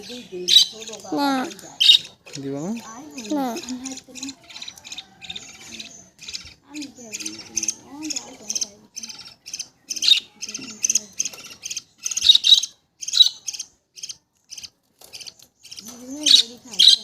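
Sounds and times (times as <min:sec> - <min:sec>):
budgerigars chirping: 0:00.0 - 0:17.0
person's voice: 0:02.7 - 0:03.9.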